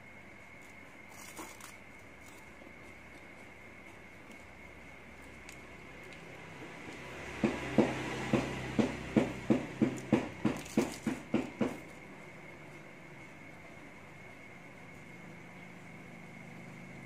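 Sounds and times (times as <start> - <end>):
crisp wafer crunching: 0.4 - 6.5.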